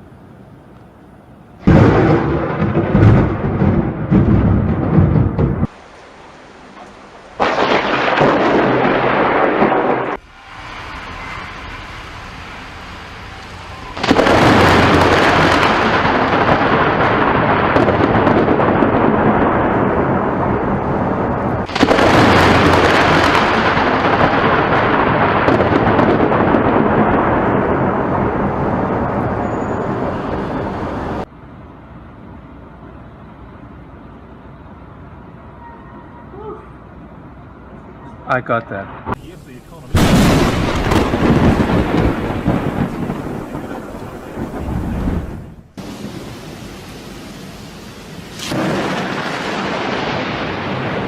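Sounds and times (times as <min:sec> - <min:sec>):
loud rolling thunder: 0:01.6 - 0:05.8, 0:07.3 - 0:31.3, 0:39.0 - 0:47.1, 0:48.3 - 0:51.0.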